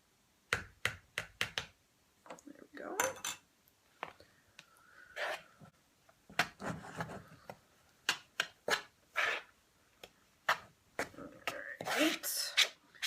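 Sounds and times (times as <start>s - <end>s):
spoon stirring thick mix: 6.4s - 13.0s.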